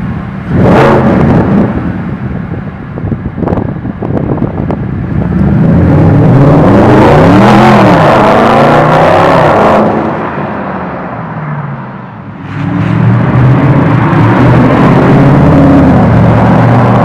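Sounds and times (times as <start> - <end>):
car engine accelerating hard: 0.4 - 2.0, 5.0 - 10.9, 12.3 - 17.0.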